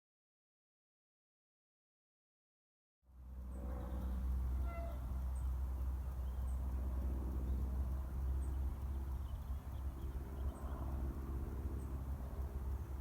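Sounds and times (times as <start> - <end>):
distant diesel locomotive rumble: 3.1 - 13.0.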